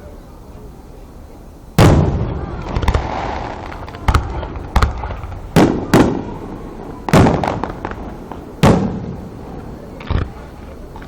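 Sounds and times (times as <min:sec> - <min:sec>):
fireworks booming: 0:01.7 - 0:11.0.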